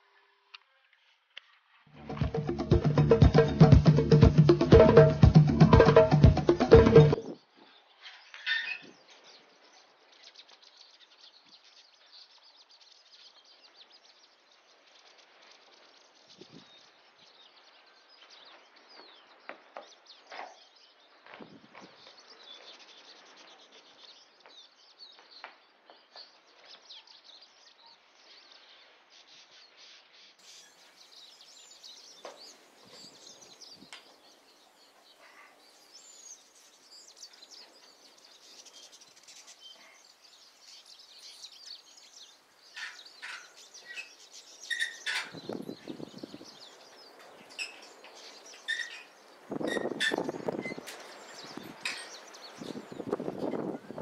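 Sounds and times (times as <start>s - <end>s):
outdoor background noise: 0.0s - 54.0s
birds chirping and calling: 29.6s - 54.0s.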